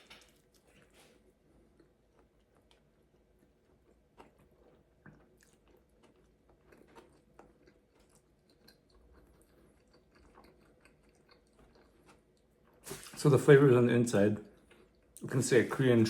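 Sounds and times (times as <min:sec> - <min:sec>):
person chewing food: 0:00.0 - 0:13.2, 0:14.5 - 0:15.2.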